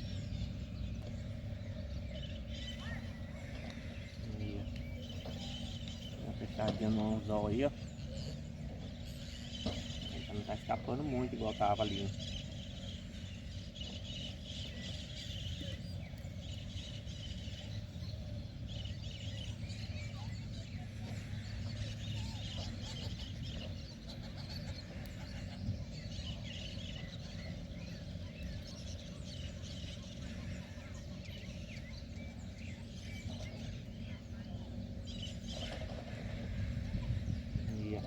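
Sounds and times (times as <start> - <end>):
birds calling and chirping: 0.0 - 38.0
low rumble: 33.1 - 38.0.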